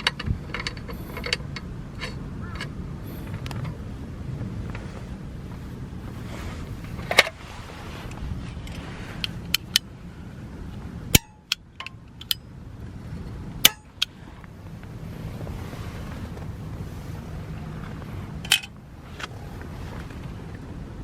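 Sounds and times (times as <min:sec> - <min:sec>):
steady low rumble: 0:00.0 - 0:21.0
sharp metallic clicks: 0:08.6 - 0:09.9, 0:11.1 - 0:12.5, 0:13.6 - 0:14.1.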